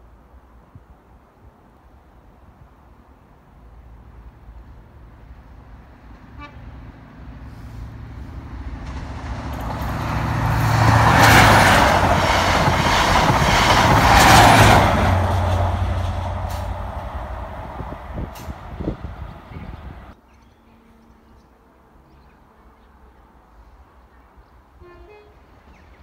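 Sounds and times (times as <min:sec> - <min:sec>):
train engine drone: 0:03.3 - 0:20.2
train wheels rushing on rails: 0:07.4 - 0:20.2.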